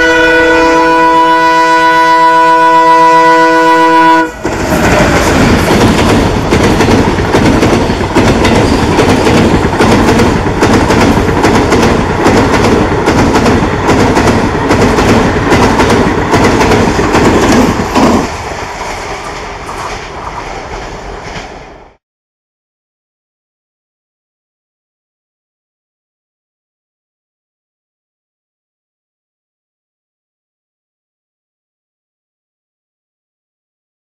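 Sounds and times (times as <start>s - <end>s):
locomotive horn chord: 0.0s - 4.6s
train wheels clickety-clack: 4.4s - 22.0s.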